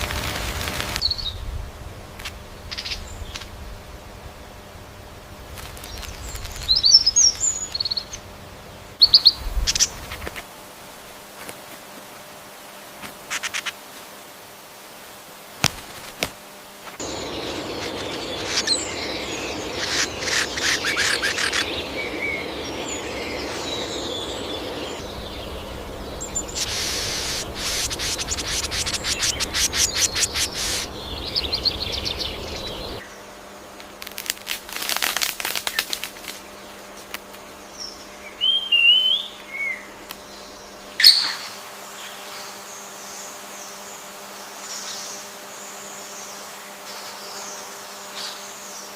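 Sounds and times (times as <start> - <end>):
steady hiss: 0.0 - 48.9
fast rattling bird trills: 2.6 - 3.5, 9.0 - 10.0, 17.0 - 33.0.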